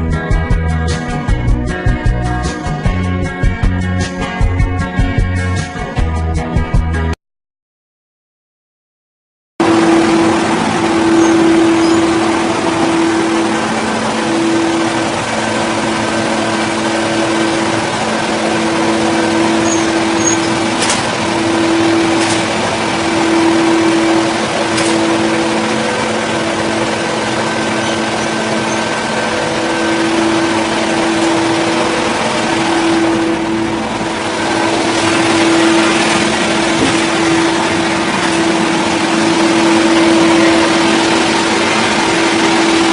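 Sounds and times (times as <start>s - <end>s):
power saw engine running: 9.6s - 42.9s.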